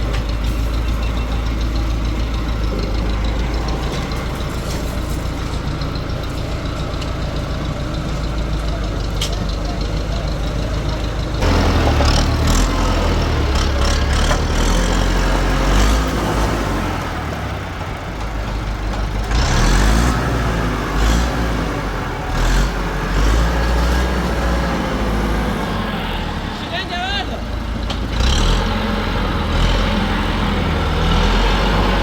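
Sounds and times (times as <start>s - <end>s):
knocks and clatter: 0.0s - 16.3s
heavy machinery rumbling: 0.0s - 32.0s.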